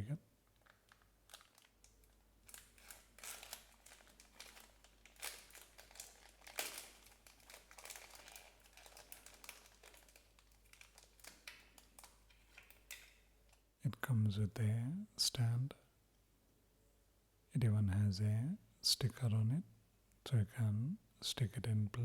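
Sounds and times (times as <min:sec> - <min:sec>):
packaging crinkling: 0:00.4 - 0:13.6.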